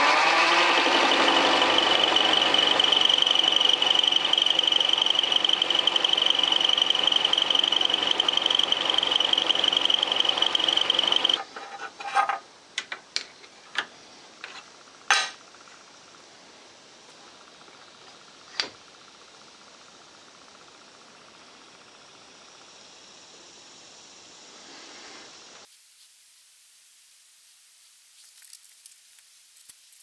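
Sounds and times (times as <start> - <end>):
high-pitched whine: 0.0 - 11.4
motor hum: 0.0 - 11.4
milling cutter cutting metal: 0.0 - 12.0.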